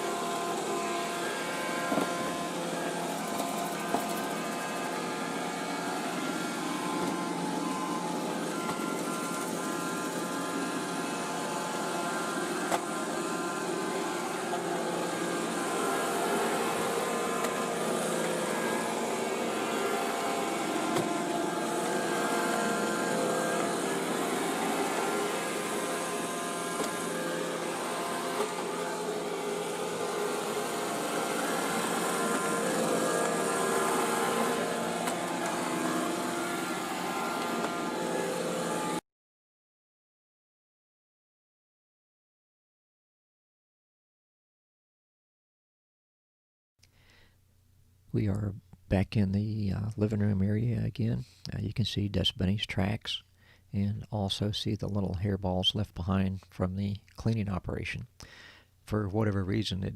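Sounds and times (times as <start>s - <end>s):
robot vacuum whirring: 0.0s - 39.0s.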